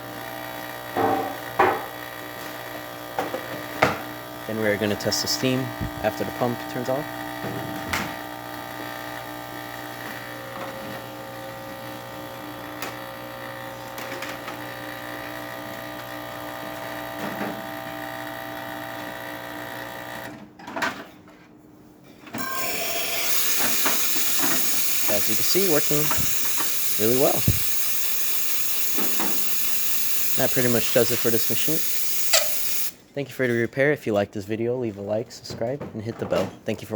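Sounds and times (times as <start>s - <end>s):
espresso machine pump buzzing: 0.0s - 20.3s, 22.4s - 33.0s
steam hissing from wand: 22.4s - 33.0s.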